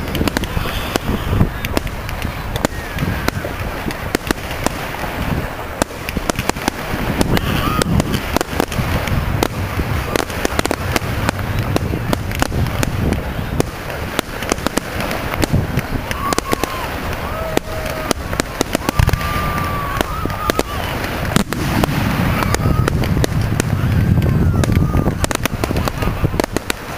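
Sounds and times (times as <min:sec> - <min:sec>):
fireworks bangs and crackles: 0:00.0 - 0:26.9
low rumble: 0:21.2 - 0:25.2.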